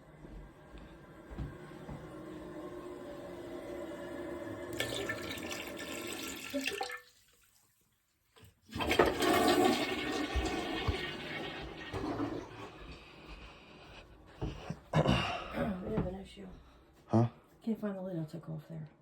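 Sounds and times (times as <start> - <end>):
drain water pouring and splashing: 2.0 - 13.0.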